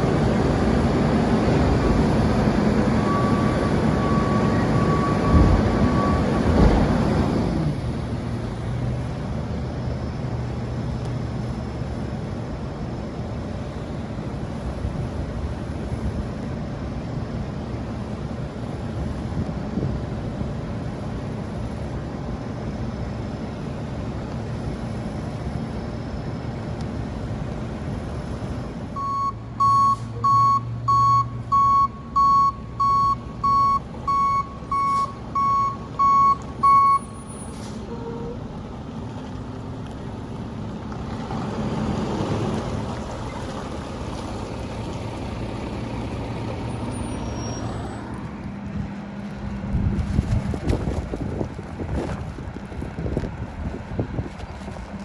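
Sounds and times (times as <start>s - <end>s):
diesel truck engine rumble: 0.0s - 55.0s
reversing alarm beeping: 2.4s - 6.6s, 29.0s - 38.2s.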